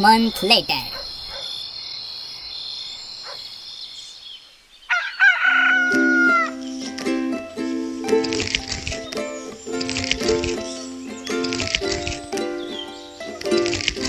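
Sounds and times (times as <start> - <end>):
crickets chirring: 0.2 - 5.0
rooster crowing: 4.9 - 6.6.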